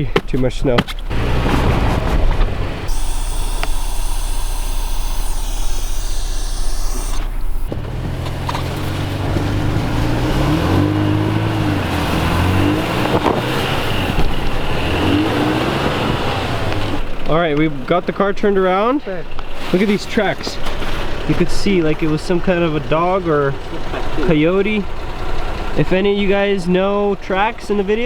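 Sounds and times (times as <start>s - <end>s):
engine revving up and down: 1.1s - 17.1s.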